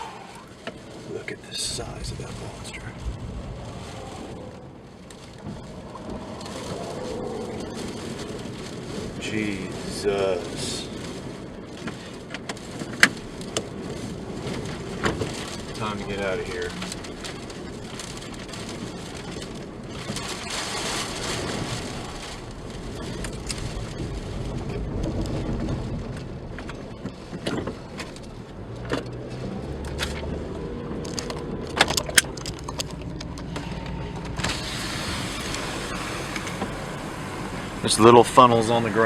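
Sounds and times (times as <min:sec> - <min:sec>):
car driving away: 0:28.5 - 0:39.0.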